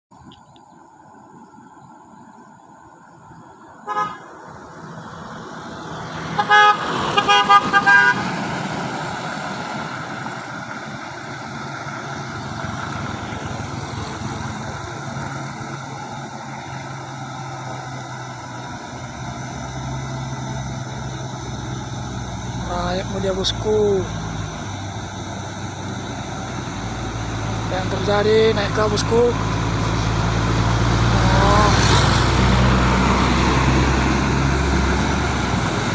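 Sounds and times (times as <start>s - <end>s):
vehicle horn honking: 3.8s - 4.4s, 6.3s - 8.3s
truck engine under load: 5.0s - 35.9s.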